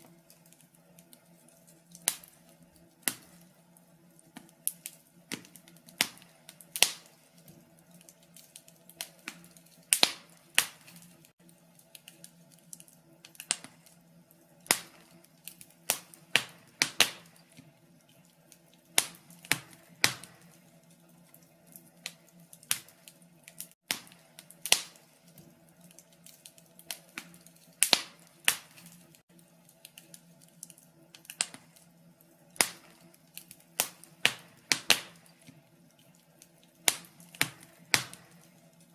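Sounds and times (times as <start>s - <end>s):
faint steady hum: 0.0s - 38.9s
wood fire crackling: 0.0s - 38.9s.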